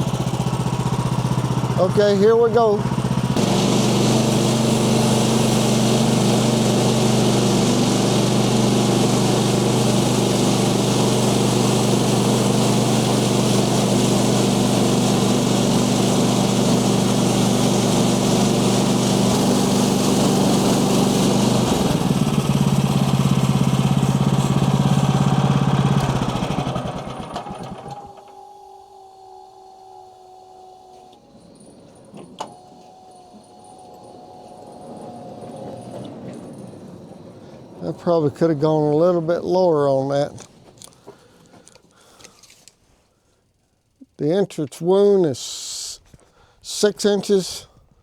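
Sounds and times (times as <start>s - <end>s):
sawmill engine droning: 0.0s - 41.8s.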